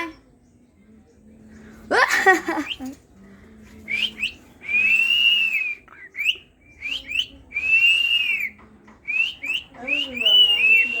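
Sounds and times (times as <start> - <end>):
bird chirping: 3.9 - 11.0
bird long arched whistle: 3.9 - 11.0.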